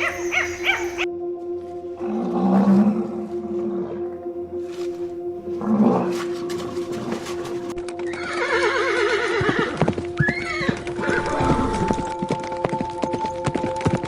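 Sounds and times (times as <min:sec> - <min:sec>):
hooves clip-clopping: 0:00.0 - 0:01.1, 0:06.1 - 0:14.0
background music drone: 0:00.0 - 0:14.0
horse whinnying: 0:08.1 - 0:12.1.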